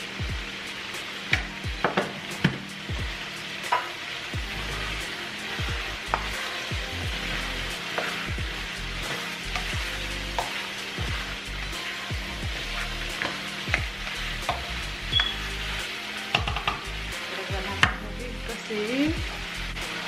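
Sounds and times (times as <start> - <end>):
food sizzling in a wok: 0.0 - 20.0
spatula tapping and scraping pan: 6.0 - 6.4, 7.9 - 8.3, 9.1 - 10.6, 13.1 - 15.4, 16.3 - 16.9.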